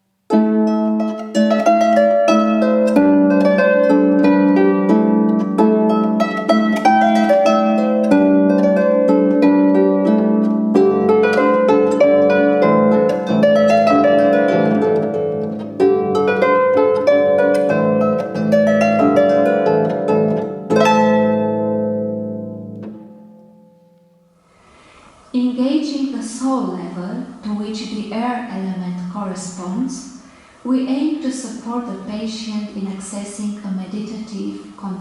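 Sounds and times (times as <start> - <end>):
harp playing folk dance: 0.3 - 24.4.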